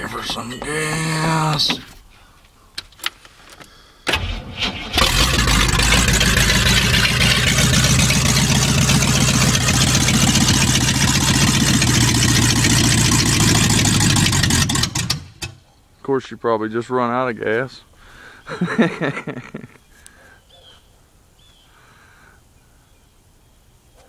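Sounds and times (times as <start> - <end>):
engine cranking: 4.1 - 15.6
car engine running: 4.4 - 15.5.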